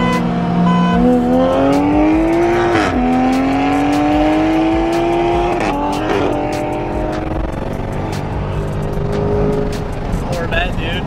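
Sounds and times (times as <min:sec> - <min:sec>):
car engine at full throttle: 0:00.0 - 0:11.0.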